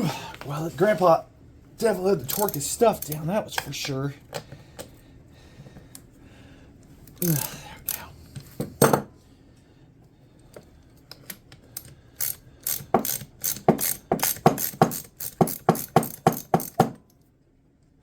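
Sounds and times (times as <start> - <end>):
socket ratchet clicking: 2.3 - 3.7, 11.2 - 16.8.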